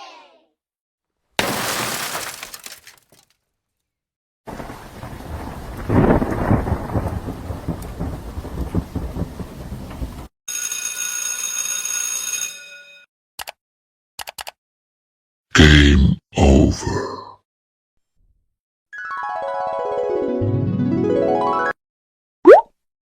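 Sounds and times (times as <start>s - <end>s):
rain: 4.5s - 10.3s
thunder rumbling: 4.5s - 10.3s.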